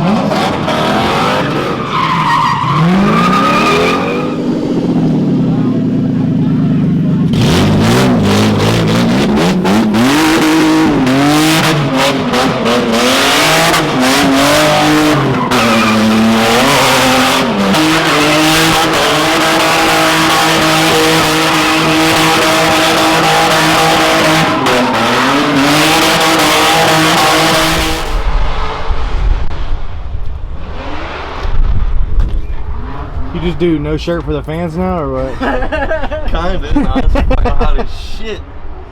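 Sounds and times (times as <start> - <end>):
car engine revving hard: 0.0 - 29.9
tyres squealing: 1.3 - 4.5, 13.7 - 27.0.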